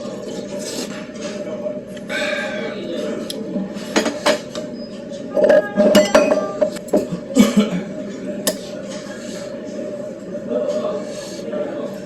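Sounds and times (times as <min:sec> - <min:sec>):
spoon and chopsticks clinking on bowl: 0:05.4 - 0:07.0.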